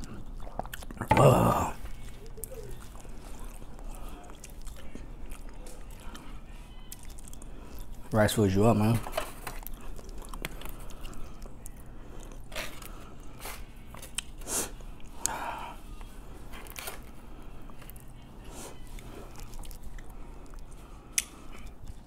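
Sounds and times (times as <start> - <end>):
close chewing: 0.0 - 8.6, 9.4 - 22.0
wet mouth clicks and smacks: 20.5 - 21.7.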